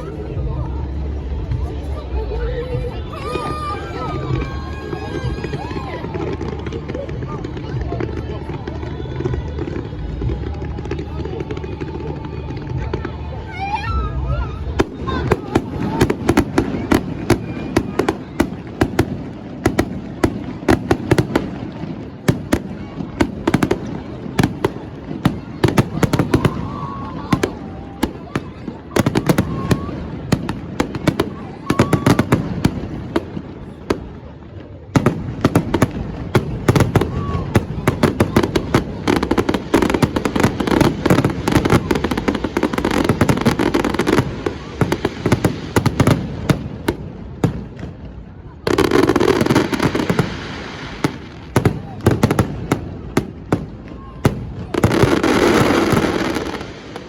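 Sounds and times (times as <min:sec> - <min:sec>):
fireworks bangs and cracks: 0:00.0 - 0:57.0.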